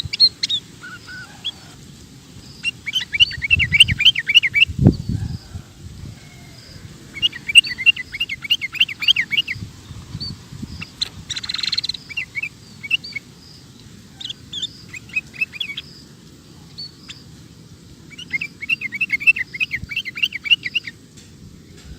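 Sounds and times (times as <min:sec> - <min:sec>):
bird singing chirpy notes: 0:02.5 - 0:05.2, 0:07.1 - 0:17.3, 0:18.0 - 0:21.0.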